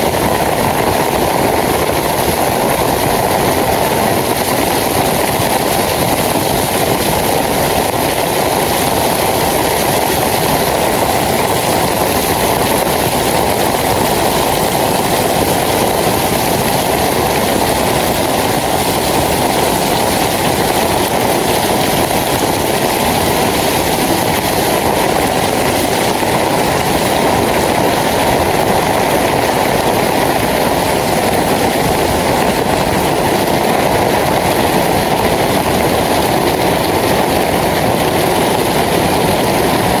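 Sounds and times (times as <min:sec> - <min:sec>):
heavy rain falling: 0:00.0 - 0:40.0.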